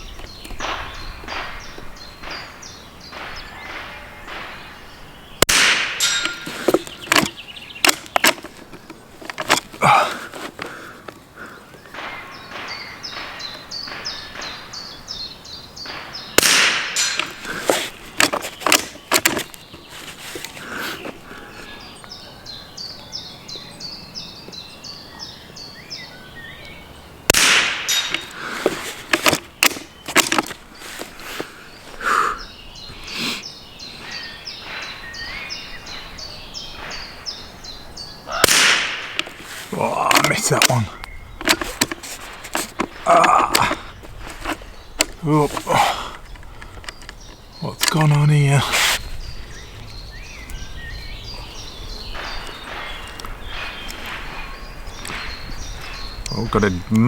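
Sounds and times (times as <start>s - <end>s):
rifle shots: 5.5s - 6.2s, 15.9s - 17.3s, 27.3s - 28.2s, 38.4s - 39.2s.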